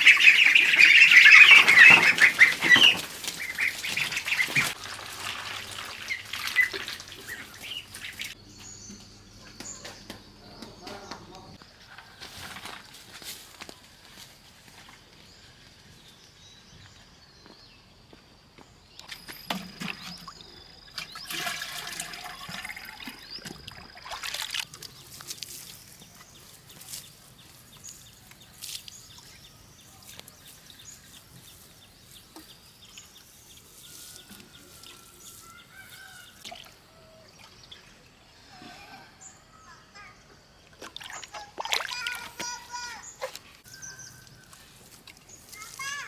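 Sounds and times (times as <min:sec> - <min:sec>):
water pouring and trickling: 0:00.0 - 0:09.0, 0:19.0 - 0:38.4, 0:40.6 - 0:42.5, 0:43.3 - 0:46.0
water dripping: 0:00.0 - 0:11.4, 0:19.0 - 0:26.3, 0:32.1 - 0:38.4, 0:40.6 - 0:42.6.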